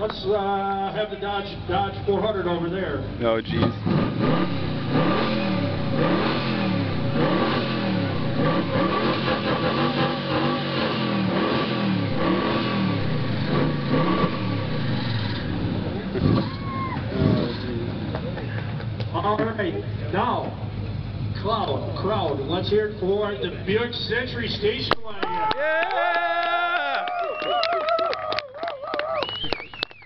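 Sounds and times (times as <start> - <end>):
car engine revving: 3.2 - 19.1.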